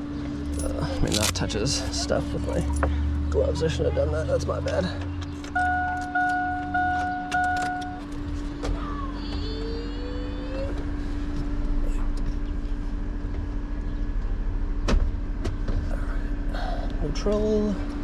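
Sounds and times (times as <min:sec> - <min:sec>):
low rhythmic vehicle rumble: 0:00.0 - 0:18.0
steady hum: 0:00.0 - 0:18.0
vehicle warning chime: 0:05.5 - 0:08.2.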